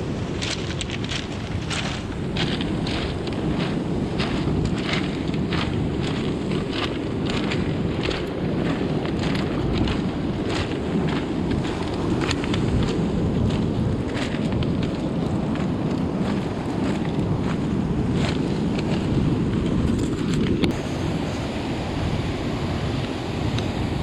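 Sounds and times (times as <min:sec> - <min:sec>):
wind buffeting microphone: 0:00.0 - 0:24.0
irregular clicks or crunches: 0:00.4 - 0:03.4.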